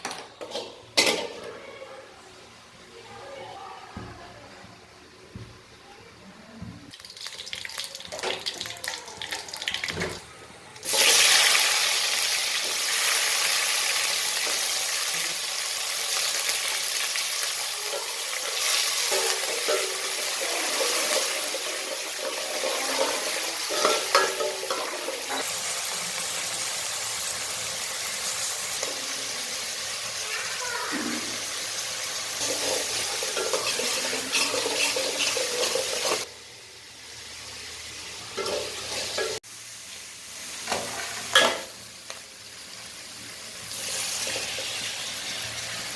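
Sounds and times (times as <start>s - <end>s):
frying sizzle in a pan: 0.0s - 45.9s
stirring scrape and clink: 32.4s - 36.3s.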